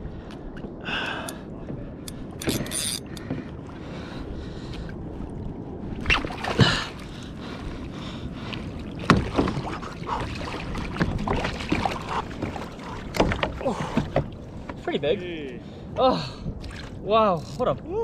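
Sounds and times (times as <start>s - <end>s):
water splashing around kayak: 0.0s - 18.0s
sharp splashes or knocks: 6.0s - 7.0s, 9.0s - 14.4s.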